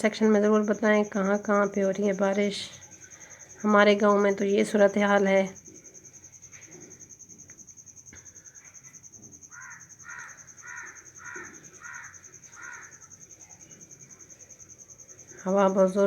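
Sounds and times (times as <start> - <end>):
cricket trill: 0.0 - 16.0
crow cawing: 9.5 - 13.1.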